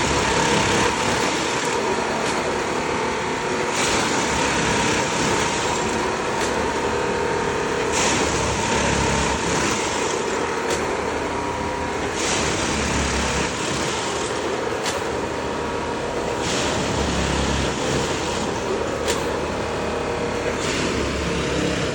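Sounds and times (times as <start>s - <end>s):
machine engine droning: 0.0s - 21.9s
sharp clack: 14.8s - 15.1s.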